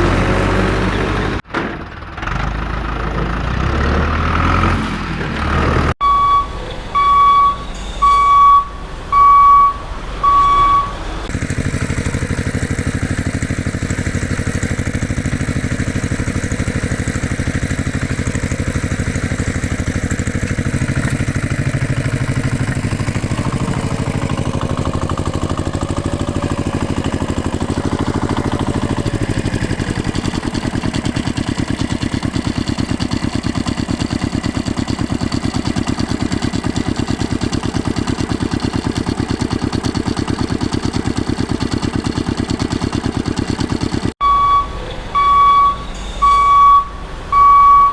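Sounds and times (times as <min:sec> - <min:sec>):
engine drone: 0:00.0 - 0:47.9
reversing alarm beeps: 0:06.0 - 0:11.0, 0:44.2 - 0:47.9.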